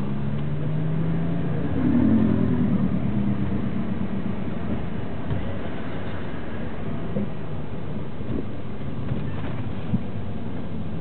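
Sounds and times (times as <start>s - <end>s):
car engine at low revs: 0.0s - 11.0s.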